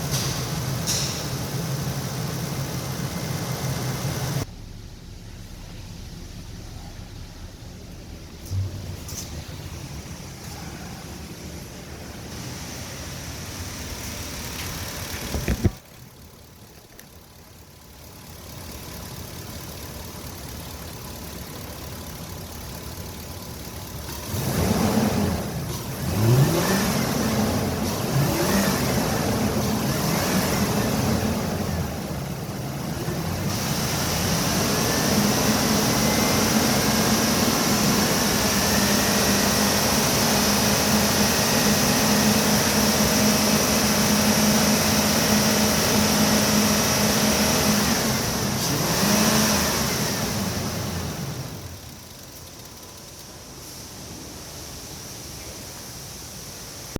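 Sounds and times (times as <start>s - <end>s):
engine running and revving: 23.8s - 52.8s.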